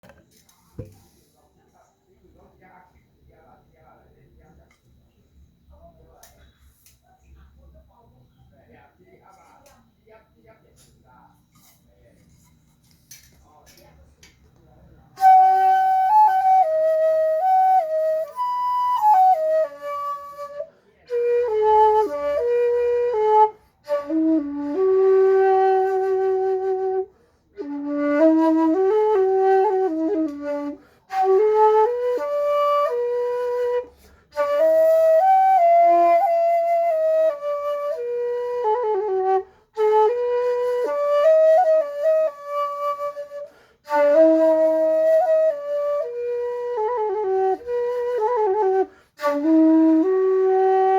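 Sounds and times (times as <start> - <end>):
bamboo flute melody: 15.2 - 50.9.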